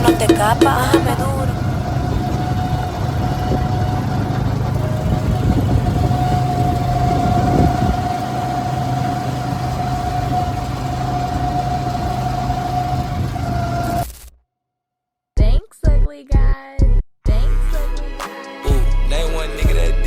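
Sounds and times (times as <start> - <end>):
engine humming with whine: 0.0 - 14.3.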